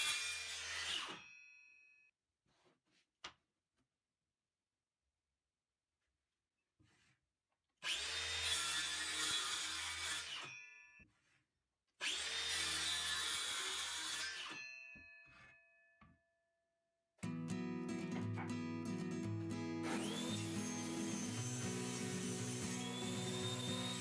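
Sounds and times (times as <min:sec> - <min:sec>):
circular saw cutting wood: 0:00.0 - 0:01.2, 0:07.8 - 0:10.5, 0:12.0 - 0:14.6, 0:19.8 - 0:24.0.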